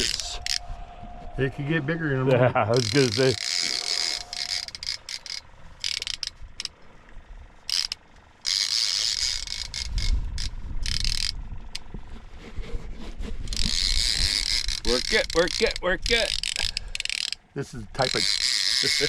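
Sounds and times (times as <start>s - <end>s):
fishing reel clicking and whirring: 0.0s - 0.7s, 2.7s - 6.8s, 7.6s - 11.9s, 13.5s - 19.0s
low rumble: 0.0s - 8.4s, 9.1s - 13.5s.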